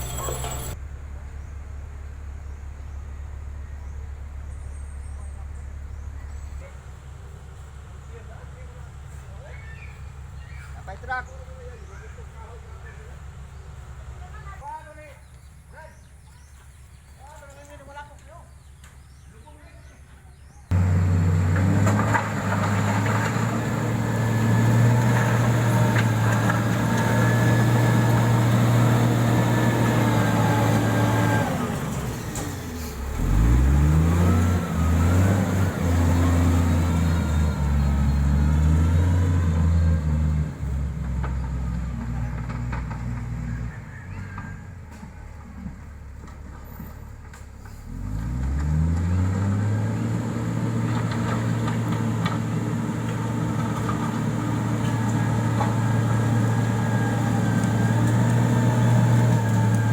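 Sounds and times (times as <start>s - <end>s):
diesel engine revving: 0.0s - 0.8s, 20.7s - 59.9s.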